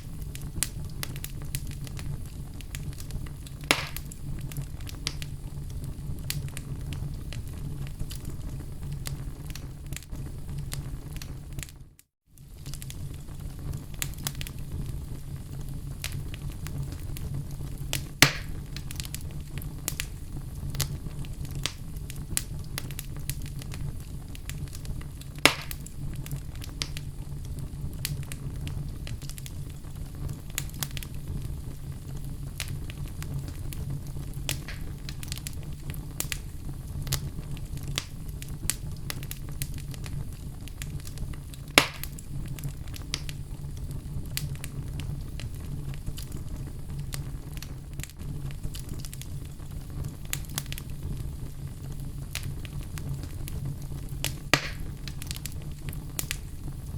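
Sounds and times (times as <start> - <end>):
loud fire pops: 0.0 - 56.9
wood fire crackling: 0.0 - 56.9.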